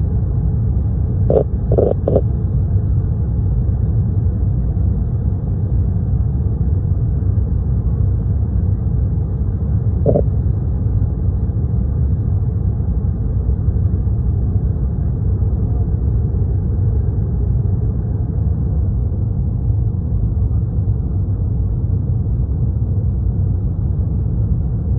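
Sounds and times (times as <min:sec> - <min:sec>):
airliner cabin rumble: 0:00.0 - 0:24.9
short tone: 0:01.3 - 0:02.2, 0:10.0 - 0:10.3.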